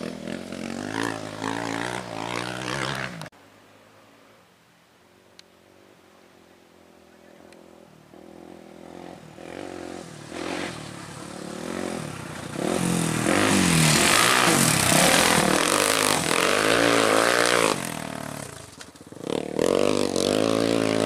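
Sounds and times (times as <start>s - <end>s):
off-road vehicle engine revving: 0.0s - 3.3s, 8.1s - 21.0s.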